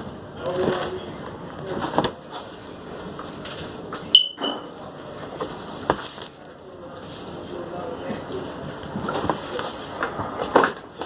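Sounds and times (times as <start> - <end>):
short high electronic beep: 4.1 - 4.6.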